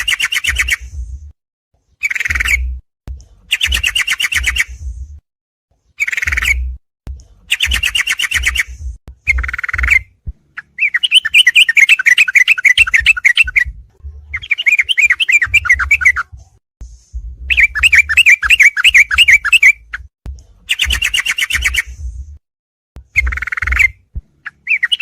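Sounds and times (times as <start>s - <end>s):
bulbul song: 0.0s - 1.2s, 1.9s - 5.0s, 5.9s - 22.2s, 23.0s - 25.0s.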